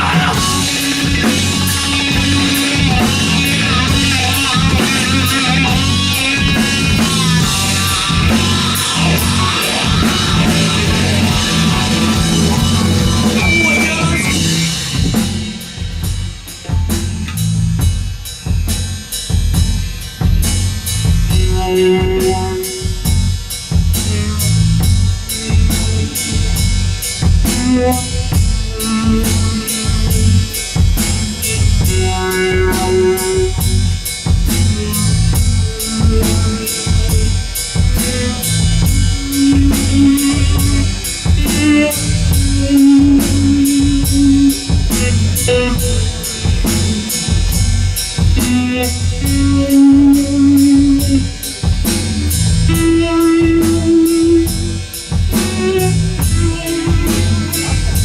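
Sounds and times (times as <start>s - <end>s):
electric guitar: 0.0s - 18.9s, 19.5s - 58.0s
drum kit beat with cymbals: 0.0s - 58.0s
rock band playing live: 0.0s - 58.0s.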